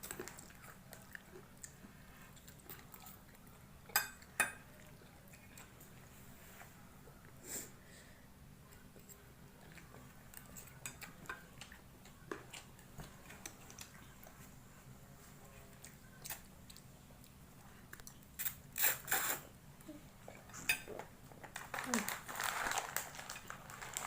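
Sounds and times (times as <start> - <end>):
faint low hum: 0.0 - 24.0
chewing and mouth smacks: 9.0 - 14.4, 15.7 - 19.4.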